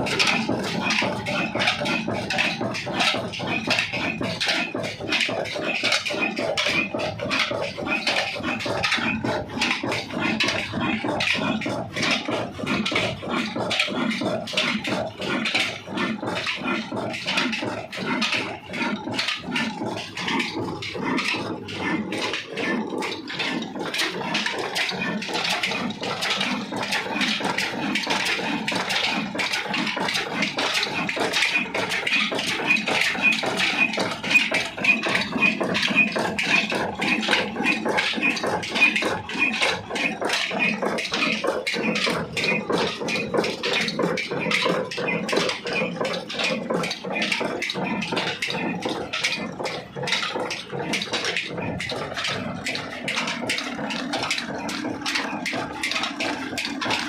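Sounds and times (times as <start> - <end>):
stationary diesel engine knocking: 0.0 - 57.0.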